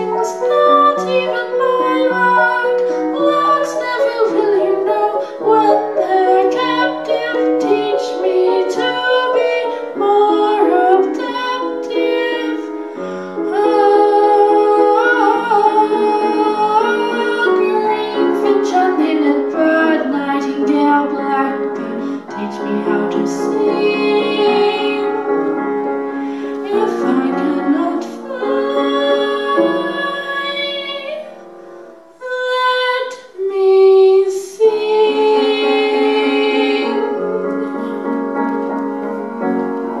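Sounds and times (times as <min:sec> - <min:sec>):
piano accompaniment: 0:00.0 - 0:40.0
woman singing a slow ballad: 0:13.5 - 0:21.7, 0:26.6 - 0:31.2.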